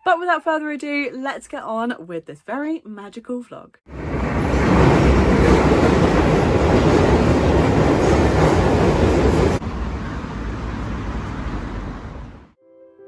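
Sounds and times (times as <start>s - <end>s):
train rumbling and rushing: 3.9s - 12.5s.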